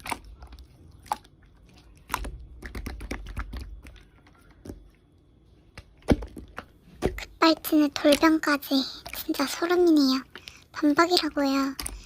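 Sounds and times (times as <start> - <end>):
slime clicking and crackling: 0.0 - 4.1.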